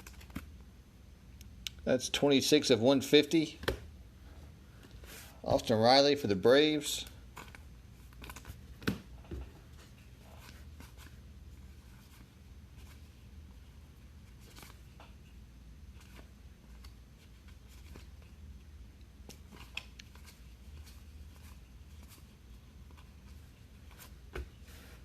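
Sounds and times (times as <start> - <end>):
trading cards being flipped: 0.0 - 0.5, 7.3 - 9.1
steady low hum: 0.0 - 25.0.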